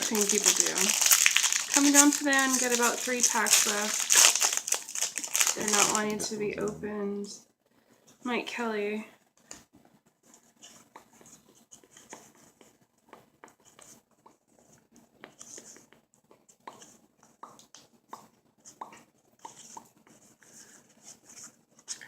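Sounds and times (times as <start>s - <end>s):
trading cards being sorted: 0.0s - 6.8s.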